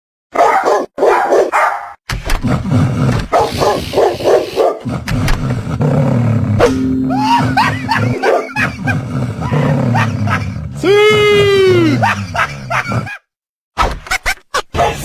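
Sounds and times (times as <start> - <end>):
dog barking: 0.3 - 2.0, 3.3 - 4.8, 14.8 - 15.0.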